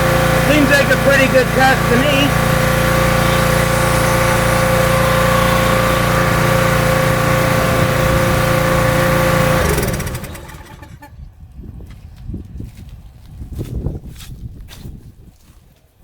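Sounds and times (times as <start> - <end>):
pressure washer engine running: 0.0 - 11.0.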